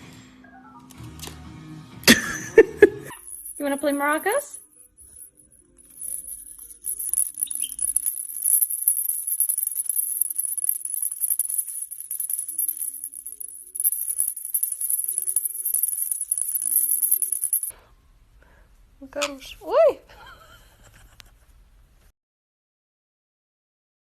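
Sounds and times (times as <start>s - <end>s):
maraca rattling: 3.1s - 17.7s.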